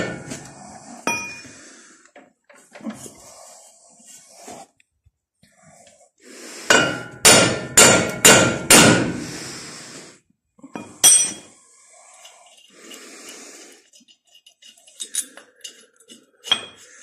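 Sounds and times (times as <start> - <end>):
hammer clanging on metal: 6.7 - 9.1.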